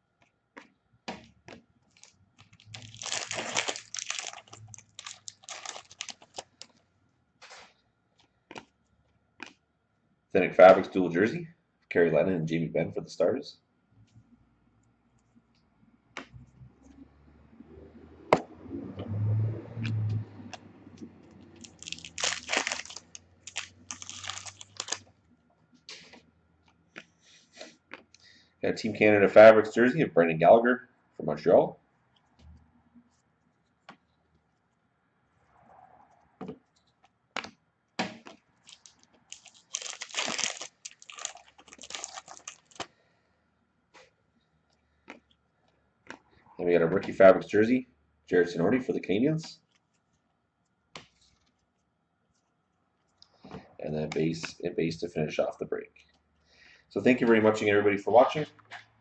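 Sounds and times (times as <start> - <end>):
plastic wrapping crinkling: 1.9 - 6.8, 21.3 - 25.1, 38.2 - 42.9.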